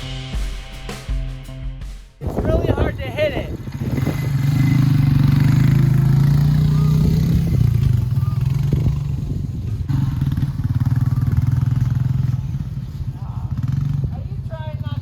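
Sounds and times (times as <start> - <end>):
atv engine revving: 2.2 - 15.0.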